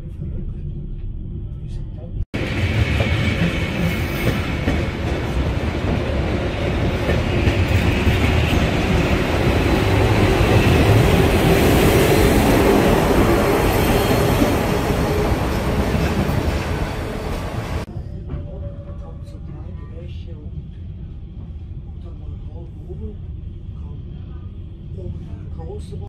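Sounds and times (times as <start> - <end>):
train wheels rumbling on rails: 2.4 - 23.1.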